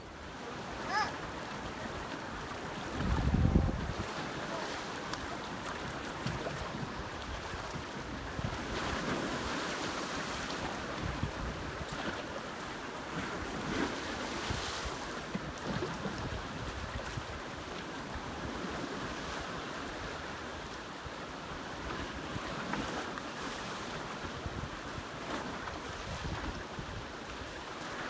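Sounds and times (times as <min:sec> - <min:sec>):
sea rushing: 0:00.0 - 0:28.0
wind buffeting microphone: 0:01.9 - 0:04.5.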